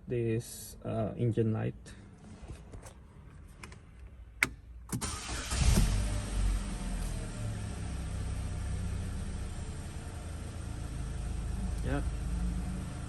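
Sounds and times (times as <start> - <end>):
car engine starting and idling: 3.6 - 13.0.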